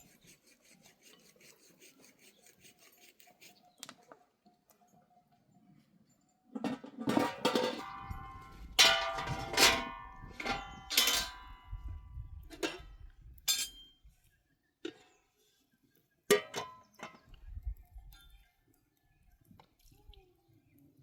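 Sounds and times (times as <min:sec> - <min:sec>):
metal objects clanking together: 0:06.6 - 0:11.6, 0:13.5 - 0:13.8.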